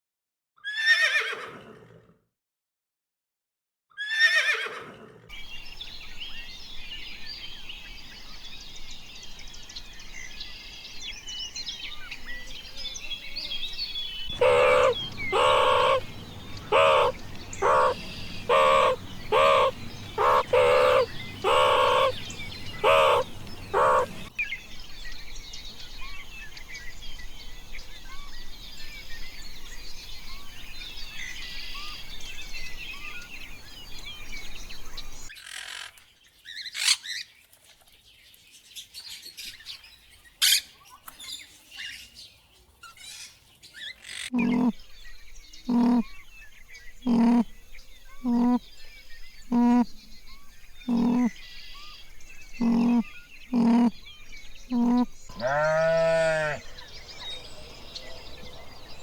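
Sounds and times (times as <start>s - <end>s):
small birds chirping: 5.3s - 59.0s
loud repeated animal calls: 14.3s - 24.3s, 44.2s - 44.8s, 45.7s - 46.0s, 47.1s - 47.5s, 48.2s - 48.6s, 49.5s - 49.9s, 50.9s - 51.3s, 52.6s - 54.0s, 54.7s - 56.7s.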